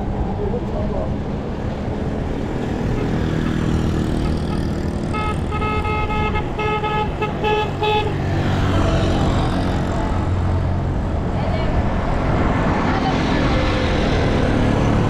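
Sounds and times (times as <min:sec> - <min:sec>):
road traffic rumble: 0:00.0 - 0:15.0
vehicle horn honking: 0:02.9 - 0:08.2.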